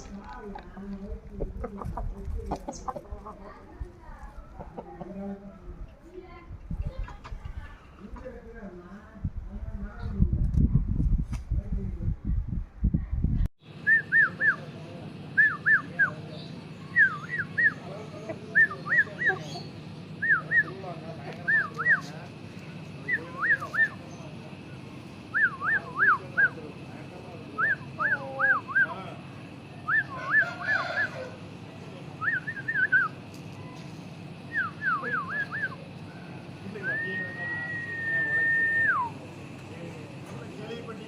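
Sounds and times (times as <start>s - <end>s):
steady low hum: 0.0s - 41.0s
bird whistling call: 13.8s - 14.6s, 16.8s - 17.8s, 18.5s - 20.8s, 32.2s - 33.2s, 34.5s - 35.8s, 36.8s - 39.2s.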